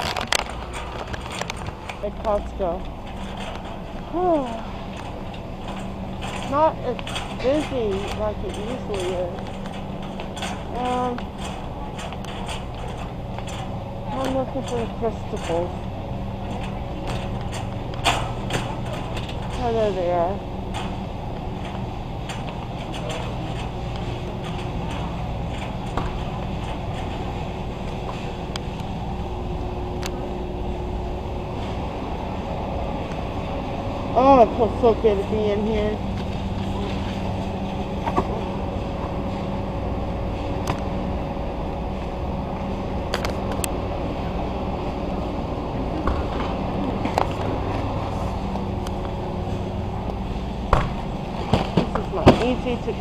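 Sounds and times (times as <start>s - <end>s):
sharp clicks and knocks: 0.0s - 19.9s
faint steady hum: 0.0s - 53.0s
low background rumble: 0.0s - 53.0s.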